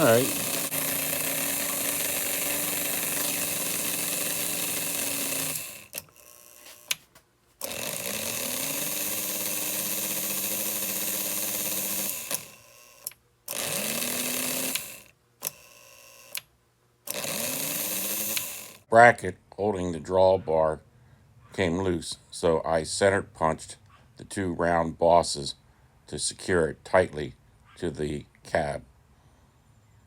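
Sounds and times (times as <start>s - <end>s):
electric toy train motor whining: 0.0s - 7.0s, 7.6s - 16.4s, 17.1s - 18.8s
sharp ratchet click: 0.0s - 7.0s, 7.6s - 16.5s, 17.1s - 18.8s.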